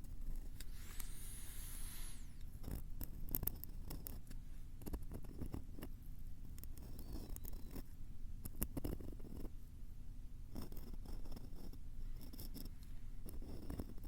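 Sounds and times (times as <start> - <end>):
tapping and scratching on microphone: 2.6 - 9.5, 10.5 - 14.0.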